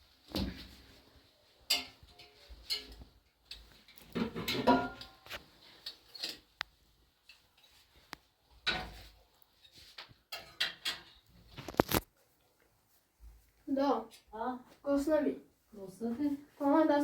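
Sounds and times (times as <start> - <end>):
household objects knocking and clattering: 1.7 - 5.4, 10.0 - 11.7.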